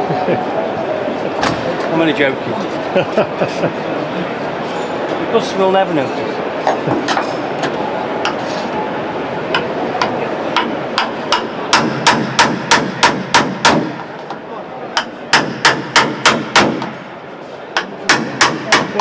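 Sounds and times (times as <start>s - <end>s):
hammer striking steel bodywork: 9.6s - 14.4s, 15.0s - 17.0s, 17.8s - 19.0s.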